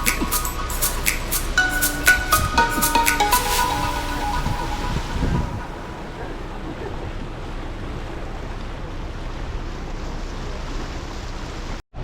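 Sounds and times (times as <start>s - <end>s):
wind and water rushing: 1.4s - 9.1s.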